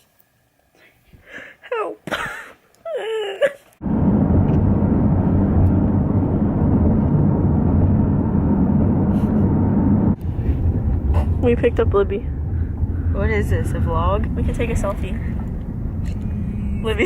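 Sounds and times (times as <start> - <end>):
car road and wind noise: 3.8 - 17.0.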